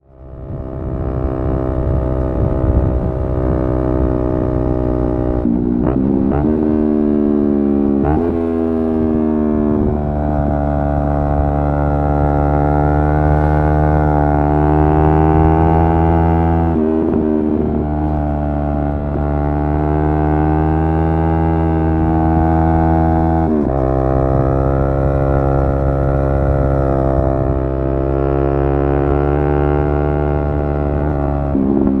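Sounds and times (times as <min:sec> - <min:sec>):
motorcycle engine running: 0:00.1 - 0:32.0.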